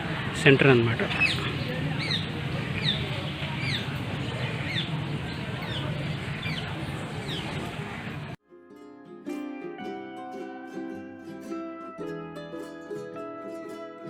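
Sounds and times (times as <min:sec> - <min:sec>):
bird chirping: 0:01.0 - 0:08.1.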